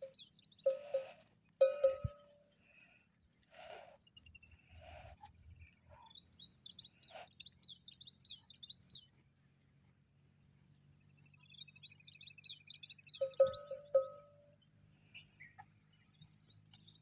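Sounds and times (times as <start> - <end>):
small bird chirping: 0.0 - 2.3, 5.6 - 9.2, 11.0 - 17.0.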